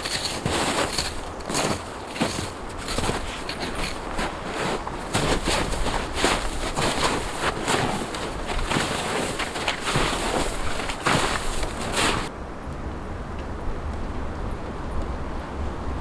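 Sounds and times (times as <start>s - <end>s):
crunching strikes into hard snow: 0.0s - 12.3s
snow scraping: 0.0s - 12.3s.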